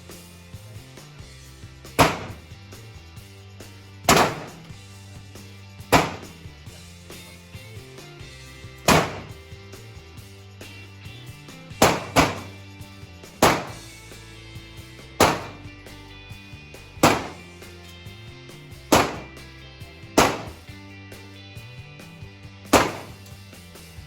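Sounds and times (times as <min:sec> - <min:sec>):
background music: 0:00.0 - 0:24.0
gunshots: 0:02.0 - 0:02.4, 0:04.1 - 0:04.7, 0:05.9 - 0:06.4, 0:08.9 - 0:09.4, 0:11.8 - 0:12.6, 0:13.4 - 0:13.9, 0:15.2 - 0:15.7, 0:17.0 - 0:17.5, 0:18.9 - 0:19.4, 0:20.2 - 0:20.6, 0:22.8 - 0:23.2.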